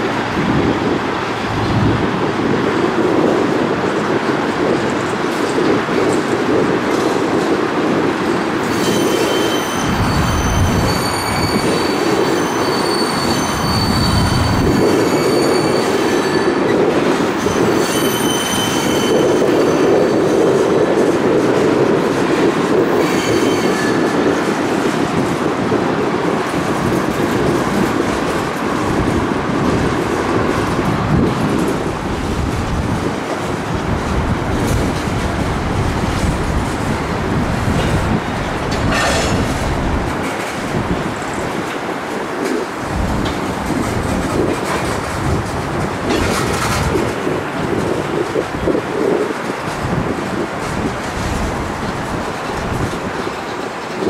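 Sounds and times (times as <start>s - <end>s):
train wheels rumbling on rails: 0.0s - 54.0s
wheels squealing: 8.6s - 20.6s.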